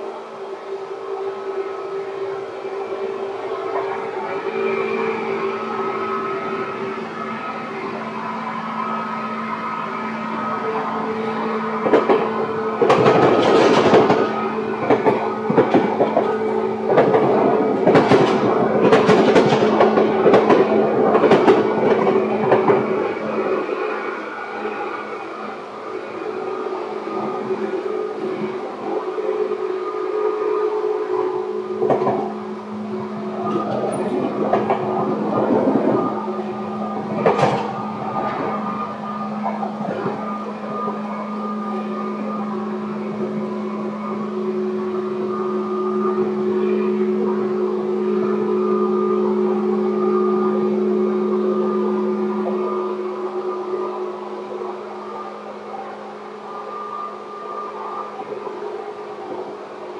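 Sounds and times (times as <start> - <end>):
constant humming tones: 0.0 - 59.9
electric train rumble: 0.0 - 59.9
train wheels clacking over rail joints: 11.2 - 23.6, 31.8 - 41.0.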